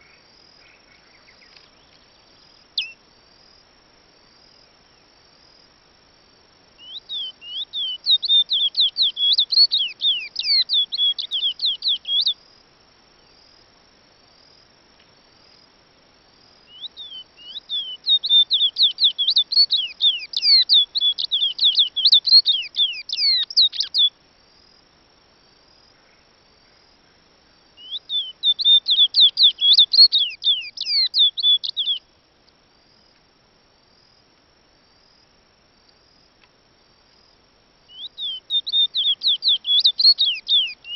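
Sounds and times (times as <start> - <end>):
high-pitched insect trill: 0.0 - 33.2, 33.8 - 40.9
songbird whistling: 2.8 - 3.0, 6.8 - 12.4, 16.7 - 24.1, 27.8 - 32.0, 37.9 - 40.9.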